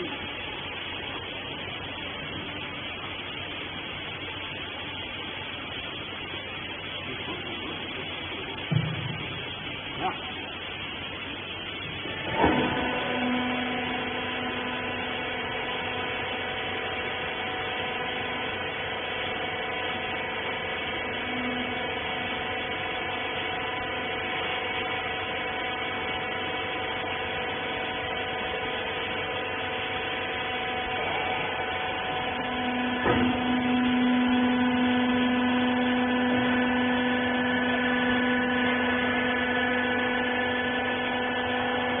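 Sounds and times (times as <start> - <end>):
motor and pump humming: 0.0 - 42.0
machine knock: 8.6 - 9.3.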